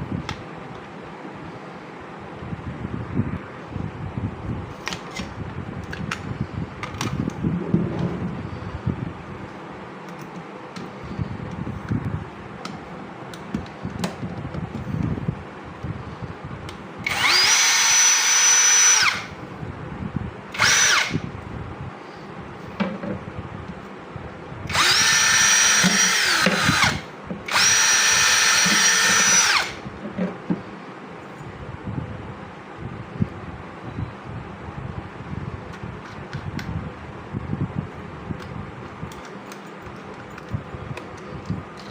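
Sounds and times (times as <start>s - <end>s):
cordless drill motor whine: 17.0s - 19.4s, 20.5s - 21.3s, 24.7s - 29.9s.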